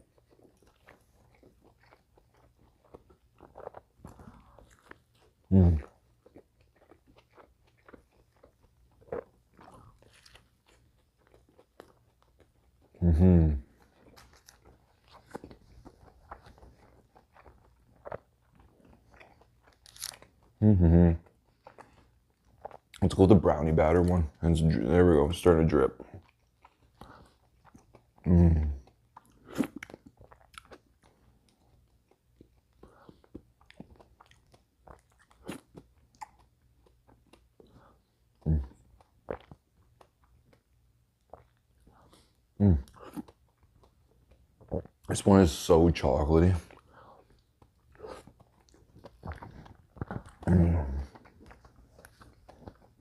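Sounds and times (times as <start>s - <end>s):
chewing with wet mouth clicks: 0.0s - 13.0s, 13.6s - 20.6s, 21.2s - 53.0s.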